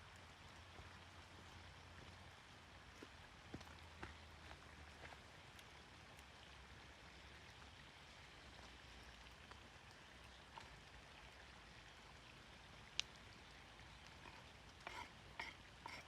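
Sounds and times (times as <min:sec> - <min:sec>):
faint steady hiss: 0:00.0 - 0:16.0
light ticks: 0:05.5 - 0:06.3, 0:12.9 - 0:13.3.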